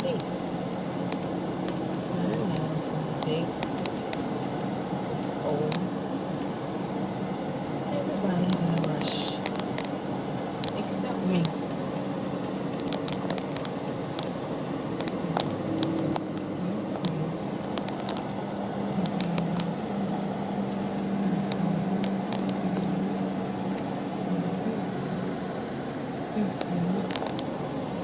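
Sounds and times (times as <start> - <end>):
car engine and road hum: 0.0 - 28.0
sharp clicks: 19.0 - 19.8.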